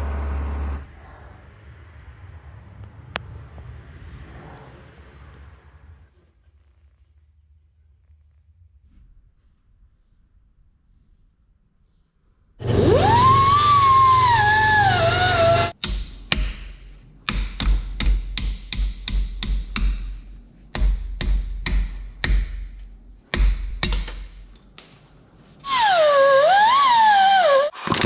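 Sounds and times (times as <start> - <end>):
high-pitched wavering wail: 12.7 - 15.7
hammer striking metal: 23.4 - 24.5.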